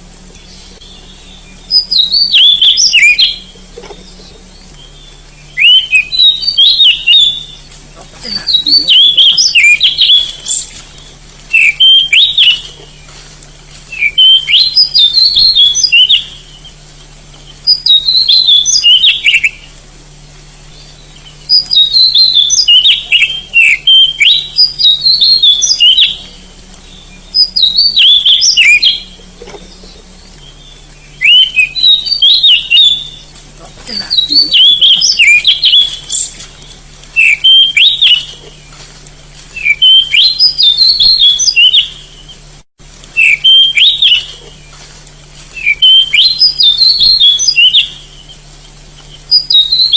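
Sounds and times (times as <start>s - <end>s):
bird singing sliding whistles: 0.5s - 7.7s, 8.5s - 10.8s, 11.5s - 13.1s, 13.9s - 16.4s, 17.6s - 19.7s, 21.3s - 33.3s, 33.9s - 36.6s, 37.2s - 38.4s, 39.6s - 42.4s, 43.2s - 44.7s, 45.6s - 48.4s, 49.1s - 49.9s.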